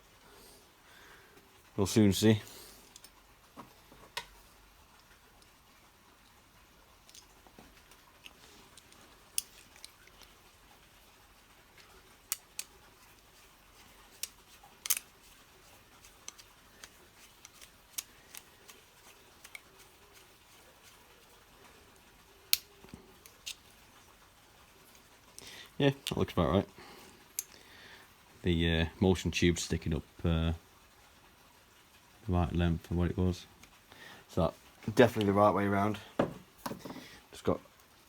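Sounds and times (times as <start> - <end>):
small metal parts clicking: 2.8 - 3.2, 7.0 - 10.4, 11.8 - 21.0, 22.4 - 23.8, 27.3 - 27.6.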